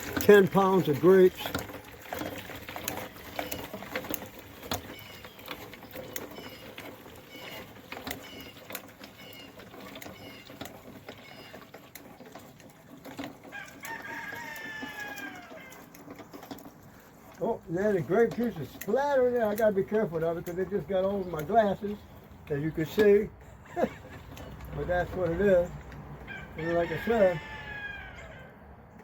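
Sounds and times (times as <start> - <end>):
rooster crowing: 13.5 - 15.8, 26.2 - 28.6.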